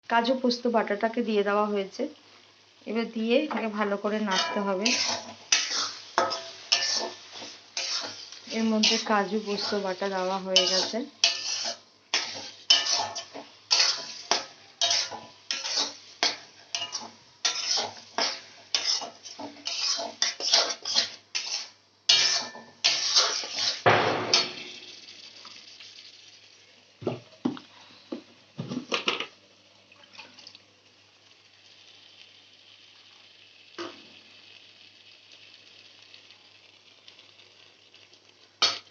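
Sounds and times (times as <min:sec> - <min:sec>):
spatula scraping a pan: 0:04.2 - 0:24.6.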